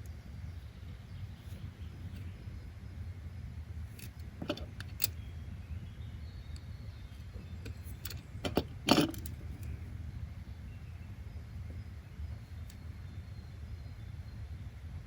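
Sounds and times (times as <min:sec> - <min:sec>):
sharp clicks and knocks: 0:04.0 - 0:05.2, 0:07.6 - 0:09.7.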